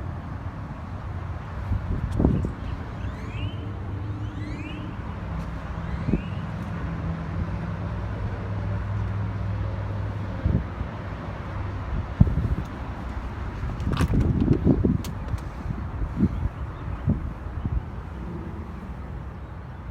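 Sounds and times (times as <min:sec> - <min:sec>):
truck engine idling: 0:11.1 - 0:19.9.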